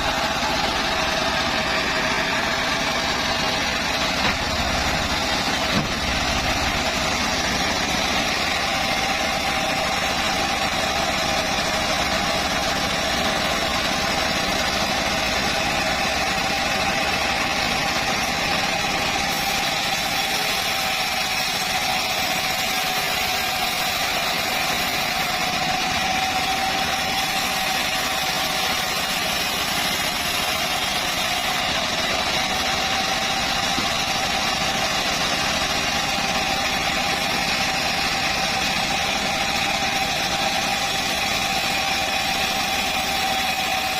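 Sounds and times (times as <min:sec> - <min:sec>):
band saw whining: 0:00.0 - 0:43.9
dense mechanical noise: 0:00.0 - 0:43.9.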